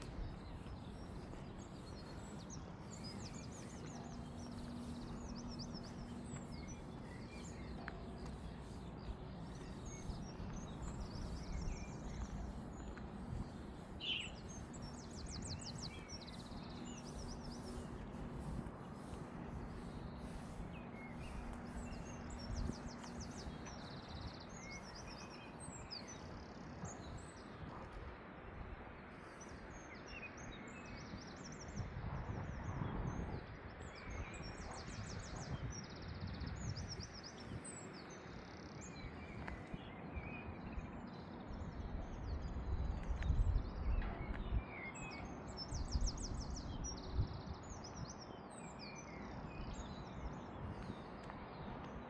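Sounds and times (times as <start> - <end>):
low outdoor rumble: 0.0 - 25.0
songbirds chirping and trilling: 0.0 - 31.8, 32.6 - 52.0.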